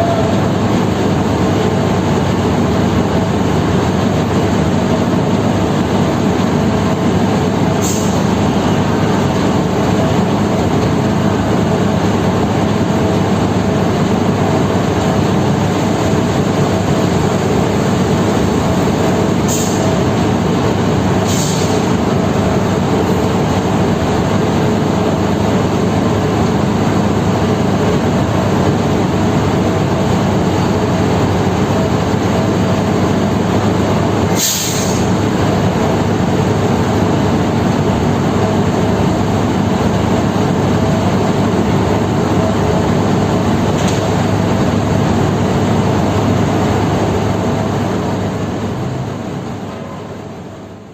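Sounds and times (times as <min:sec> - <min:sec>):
diesel engine drone: 0:00.0 - 0:50.9
short hisses: 0:19.5 - 0:19.9, 0:21.2 - 0:21.9, 0:34.3 - 0:35.1.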